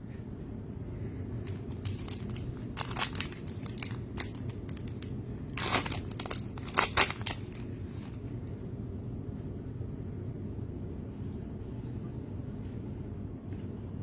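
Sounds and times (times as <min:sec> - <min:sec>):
plastic wrappers crinkling: 0:01.4 - 0:08.3.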